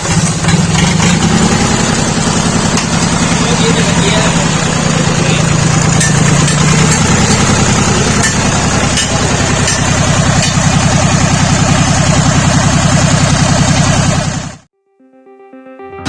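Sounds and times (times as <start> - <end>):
diesel engine running: 0.0 - 14.7.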